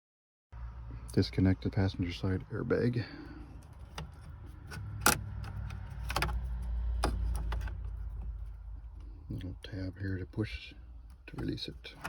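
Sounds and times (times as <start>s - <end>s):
plastic and metal clicks and rattles: 3.7s - 8.6s.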